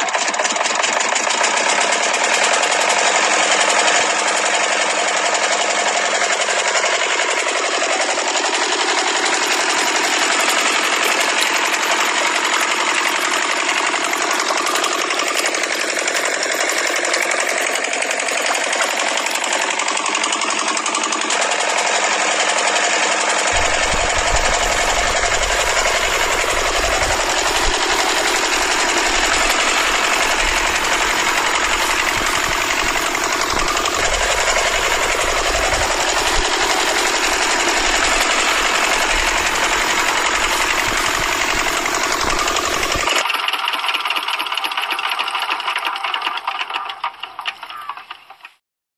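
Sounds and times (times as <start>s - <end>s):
small engine mechanical rattle: 0.0s - 48.6s
low rumble: 23.6s - 43.1s.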